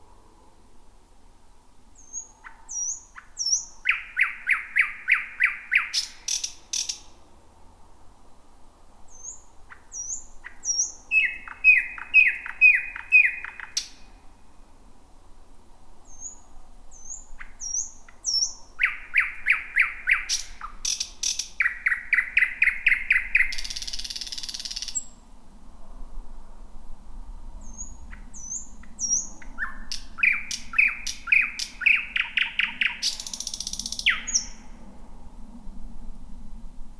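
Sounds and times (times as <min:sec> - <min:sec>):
thrush nightingale singing: 0:02.0 - 0:07.2, 0:09.1 - 0:14.3, 0:16.0 - 0:25.2, 0:27.6 - 0:34.8.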